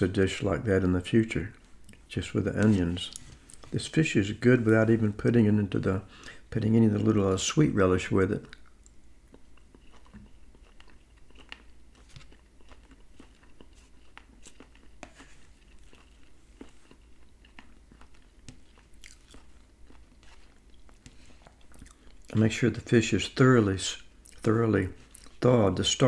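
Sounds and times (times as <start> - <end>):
chewing and mouth noises: 8.5 - 22.4, 24.2 - 25.4.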